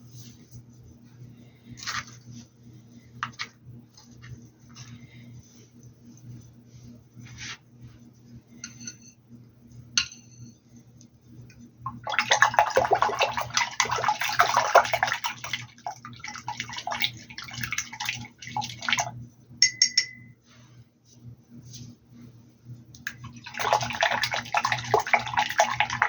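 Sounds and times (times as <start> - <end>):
low steady hum: 0.0 - 26.0
water splashing and sloshing: 11.9 - 19.2, 23.0 - 26.0.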